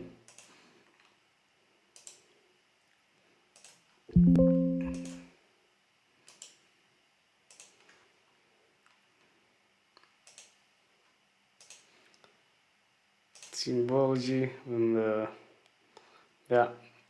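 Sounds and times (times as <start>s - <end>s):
computer alert chime: 4.2s - 5.2s
faint mouse clicks: 7.5s - 8.0s, 10.0s - 10.6s, 11.6s - 12.4s.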